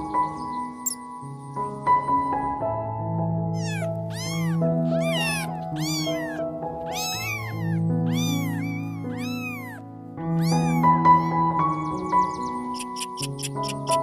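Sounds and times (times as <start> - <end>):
soft background music: 0.0 - 14.0
cat meowing: 3.5 - 11.4.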